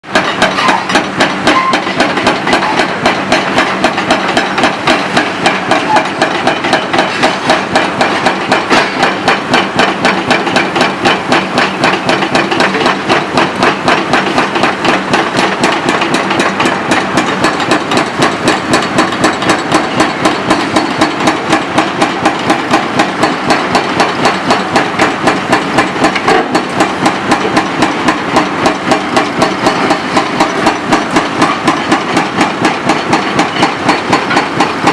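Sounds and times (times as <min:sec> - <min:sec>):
excavator diesel engine hum: 0:00.0 - 0:34.9
hydraulic breaker hammer pounding concrete: 0:00.0 - 0:34.9.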